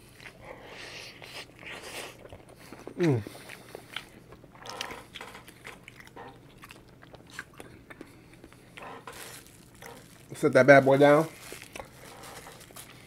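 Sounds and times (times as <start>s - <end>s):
mouth clicks and smacks chewing: 1.2s - 8.6s.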